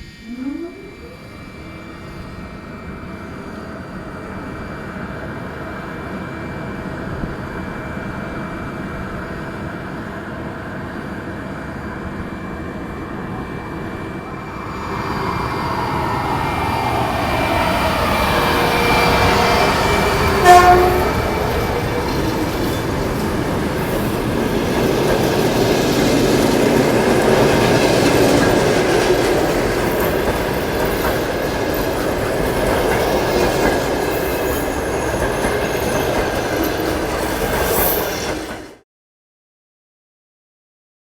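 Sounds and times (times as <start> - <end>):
electric locomotive running whine: 0.0 - 38.8
locomotive horn blast: 17.7 - 23.0.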